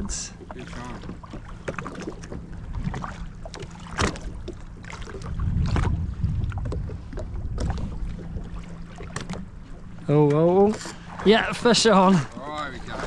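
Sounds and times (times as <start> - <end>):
jet ski engine idling: 0.0 - 5.3, 6.6 - 13.0
wind gust on microphone: 5.2 - 8.2.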